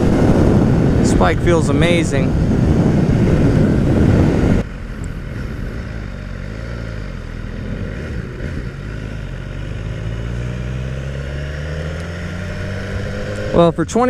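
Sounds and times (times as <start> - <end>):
wind noise rushing: 0.0 - 6.2, 10.2 - 14.0
motorcycle engine running at low revs: 0.0 - 14.0.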